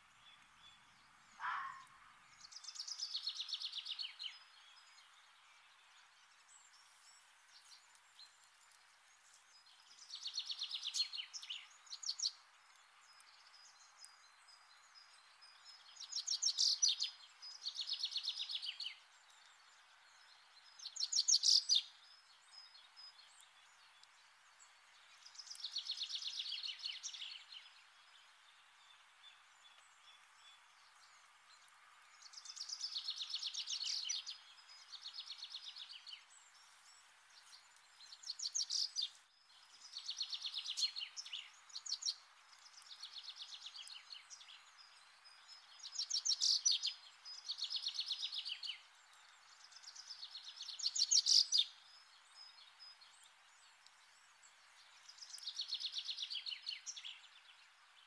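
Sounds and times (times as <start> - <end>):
faint steady hiss: 0.0 - 58.0
bird singing rapid trills: 0.3 - 7.3, 13.0 - 23.9, 37.9 - 57.5.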